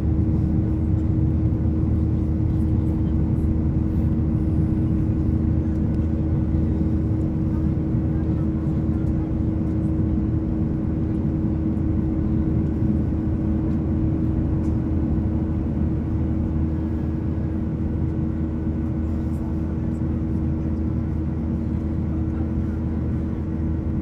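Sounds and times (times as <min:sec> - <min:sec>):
airplane cabin drone: 0:00.0 - 0:24.0.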